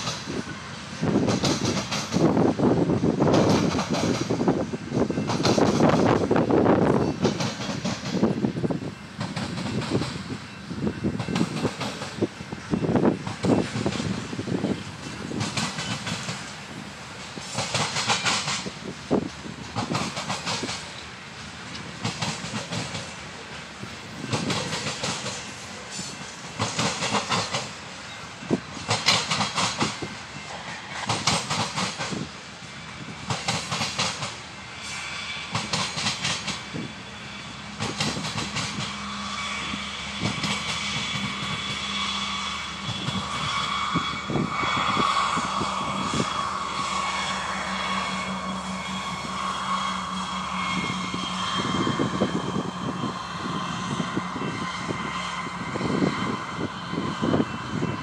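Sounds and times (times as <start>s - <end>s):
diesel locomotive engine drone: 0.0s - 58.0s
train wheels clacking on rails: 0.0s - 58.0s.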